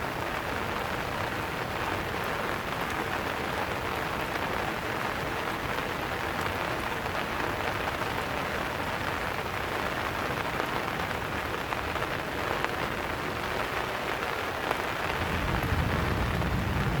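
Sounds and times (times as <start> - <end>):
steady rain falling: 0.0 - 17.0
low rumble: 15.1 - 17.0.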